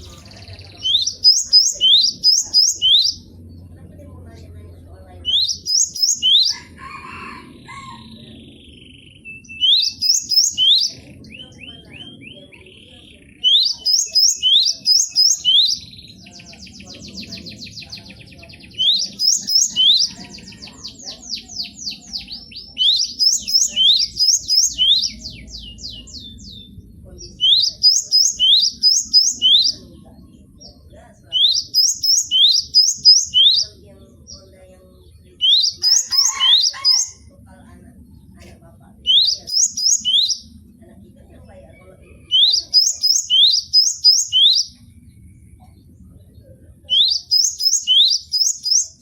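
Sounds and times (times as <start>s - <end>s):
bird singing high whistles: 42.3s - 44.8s, 46.9s - 48.9s.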